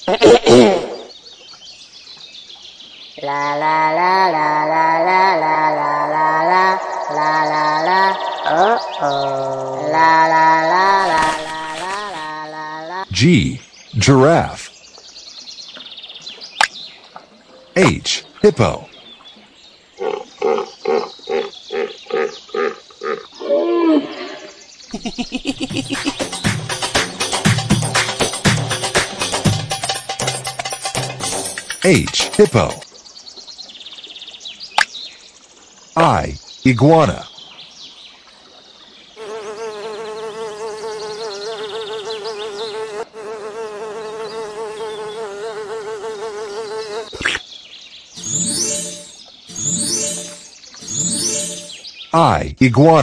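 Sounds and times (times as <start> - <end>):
flying insect buzzing: 5.4 - 12.6, 39.2 - 47.4
hippopotamus grunting: 20.0 - 24.5.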